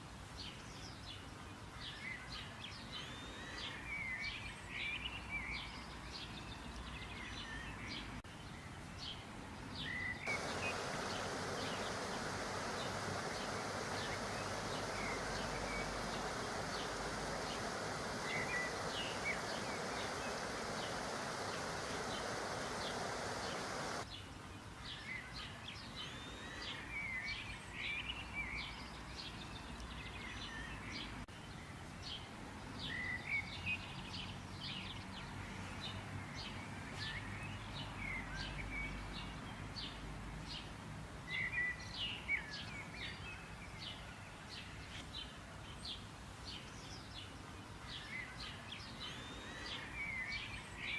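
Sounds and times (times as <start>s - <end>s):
small birds chirping: 9.8s - 24.2s
steady hiss: 10.3s - 24.1s.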